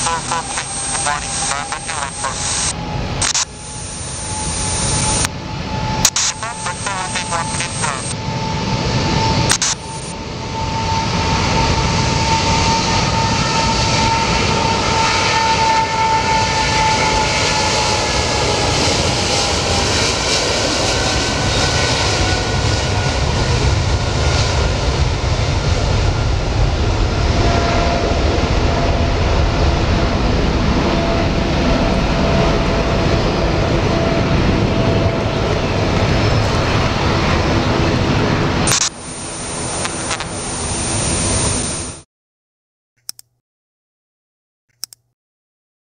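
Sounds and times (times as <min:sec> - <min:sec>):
jet airliner taking off: 0:00.0 - 0:42.0.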